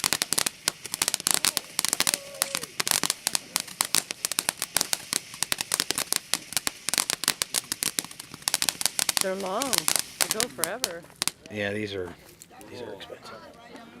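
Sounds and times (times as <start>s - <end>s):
fireworks crackling: 0.0s - 14.0s.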